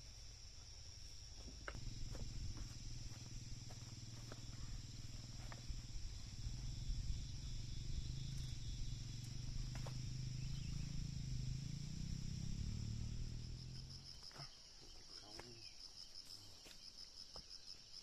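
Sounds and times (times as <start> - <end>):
low rumbling hum: 0.0 - 14.0
insects chirping: 0.0 - 18.0.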